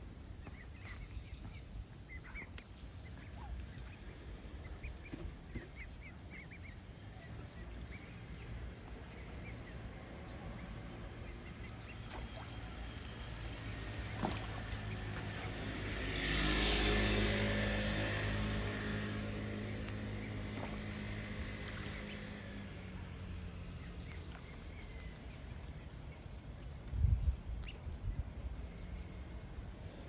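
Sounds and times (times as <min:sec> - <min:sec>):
ducklings peeping: 0:00.1 - 0:16.3, 0:16.9 - 0:30.0.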